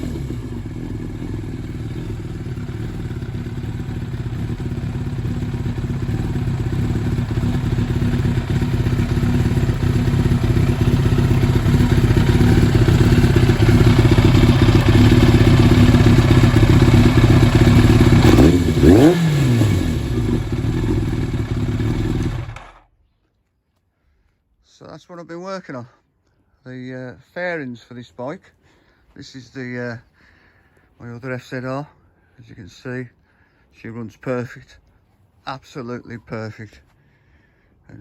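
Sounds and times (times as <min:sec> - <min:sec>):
motorcycle engine idling: 0:00.0 - 0:22.9.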